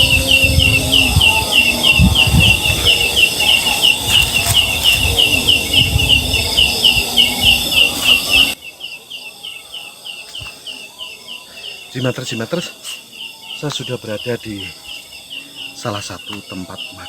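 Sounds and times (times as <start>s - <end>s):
gusty low wind rumbling: 0.0s - 8.6s
high chirping call: 0.0s - 17.0s.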